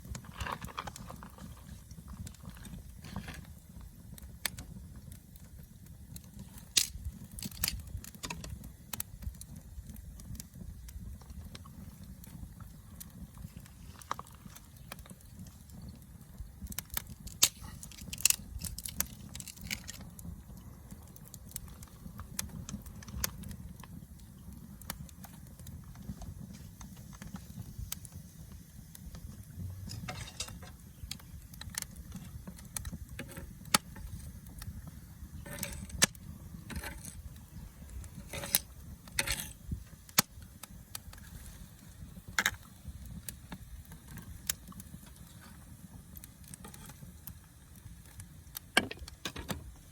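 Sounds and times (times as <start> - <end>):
wood fire crackling: 0.0 - 49.9
low steady rumble: 28.5 - 39.9.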